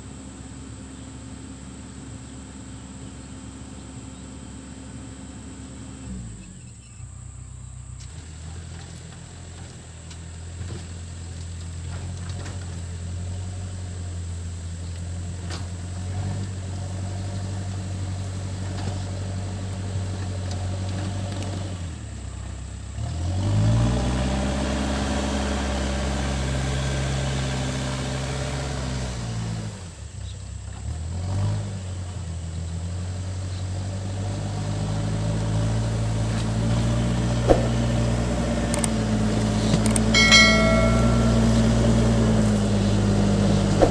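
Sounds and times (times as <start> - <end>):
diesel engine revving: 22.9 - 30.0.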